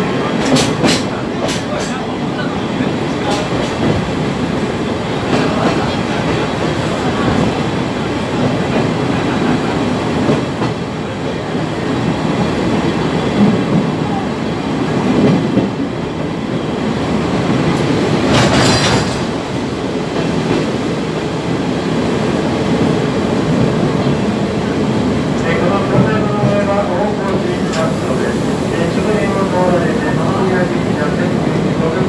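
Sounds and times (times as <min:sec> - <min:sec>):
train wheels rumbling on track: 0:00.0 - 0:32.0.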